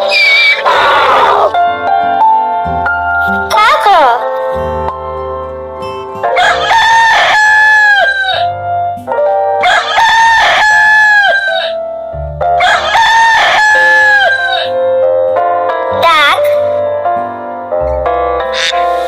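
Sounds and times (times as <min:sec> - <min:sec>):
background music: 0:00.0 - 0:19.0
rooster crowing: 0:06.4 - 0:08.5, 0:09.6 - 0:11.8, 0:12.6 - 0:14.7.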